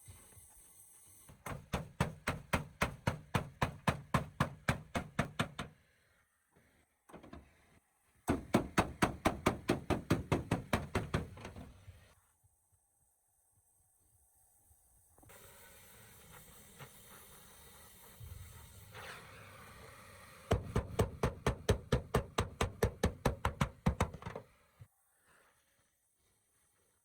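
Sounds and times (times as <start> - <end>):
rapid even knocks: 8.3 - 11.7, 20.5 - 24.4.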